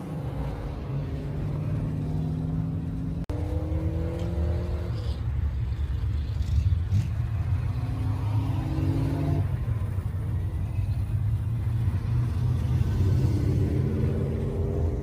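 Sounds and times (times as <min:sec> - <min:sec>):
car engines rumbling: 0:00.0 - 0:15.0
cars driving past: 0:00.0 - 0:15.0.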